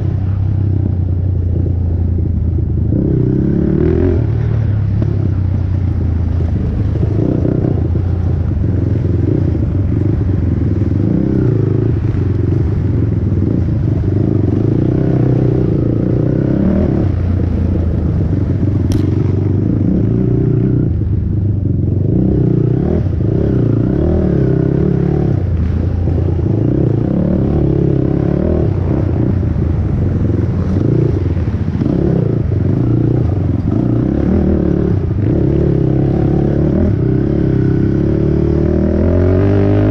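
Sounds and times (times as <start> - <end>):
quad bike engine revving: 2.9 - 5.4, 6.2 - 39.9
sharp click: 18.9 - 19.2.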